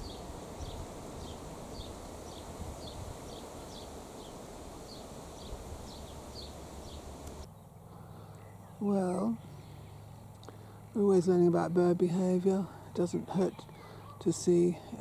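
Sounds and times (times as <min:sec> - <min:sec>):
small bird calling: 0:00.0 - 0:08.6.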